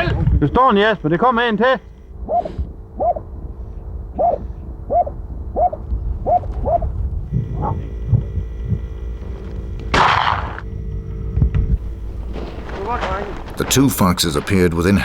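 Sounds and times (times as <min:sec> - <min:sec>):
dog barking: 0:02.2 - 0:03.3, 0:04.2 - 0:06.9, 0:07.5 - 0:07.9.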